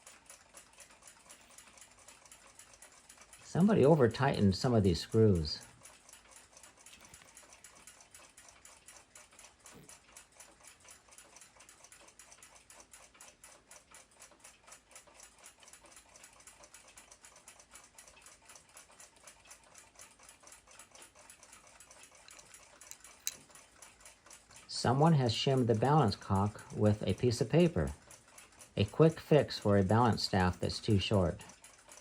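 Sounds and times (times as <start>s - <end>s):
clock ticking: 0.0s - 32.0s.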